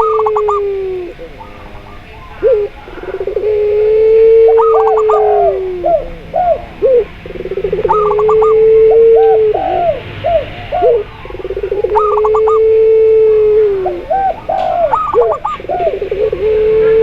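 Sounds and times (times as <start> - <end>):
long drawn-out dove coos: 0.0 - 17.0
rising and falling dove coos: 0.0 - 17.0
quick high looping notes: 2.4 - 17.0.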